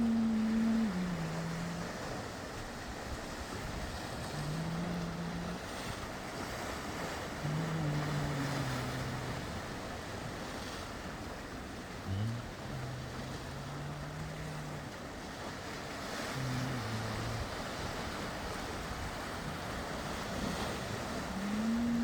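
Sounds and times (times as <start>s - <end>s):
low held hums: 0.0s - 22.0s
waves washing in: 0.0s - 22.0s.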